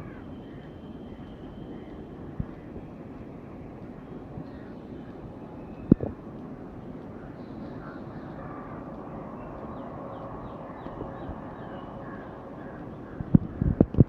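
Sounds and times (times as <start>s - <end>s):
distant jet engines rumbling: 0.0s - 14.0s.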